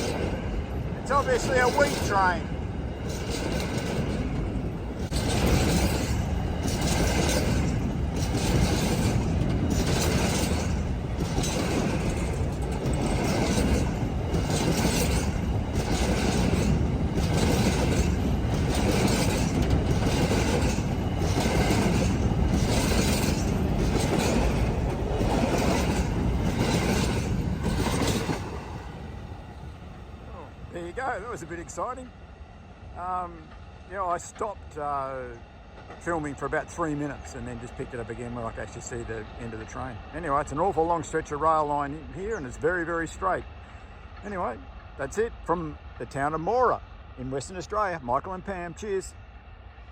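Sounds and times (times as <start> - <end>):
train wheels clacking on rail joints: 0.0 - 28.7.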